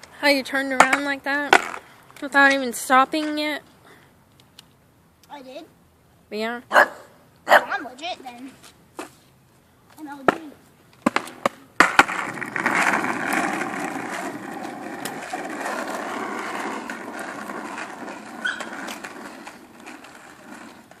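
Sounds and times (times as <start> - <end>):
toy car motor rolling on pavement: 11.0 - 21.0.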